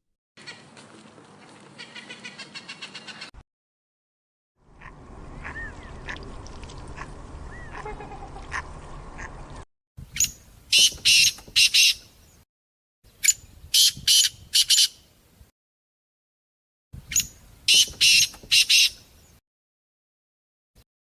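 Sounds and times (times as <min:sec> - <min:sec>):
ducks quacking: 0:01.8 - 0:03.3, 0:04.7 - 0:09.6.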